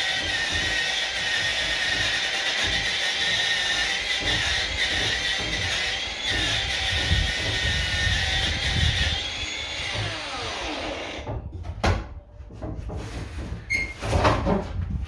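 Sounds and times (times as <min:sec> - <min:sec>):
wire brush power tool on stone: 0:00.0 - 0:11.2.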